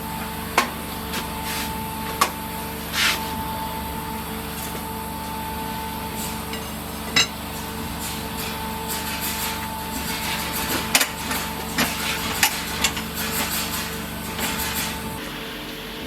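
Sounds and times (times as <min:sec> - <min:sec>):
workshop machine humming: 0:00.0 - 0:16.0.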